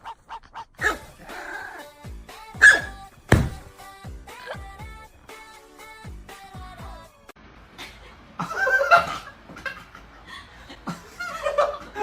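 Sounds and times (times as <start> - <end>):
voice sounds: 0.8 - 3.0
background music: 0.8 - 7.4
person laughing: 7.8 - 12.0.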